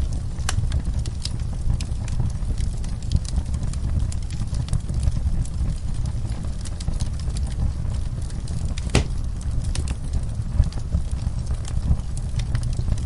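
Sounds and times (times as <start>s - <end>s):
wood fire crackling: 0.0s - 13.0s
fire pop: 8.4s - 10.0s.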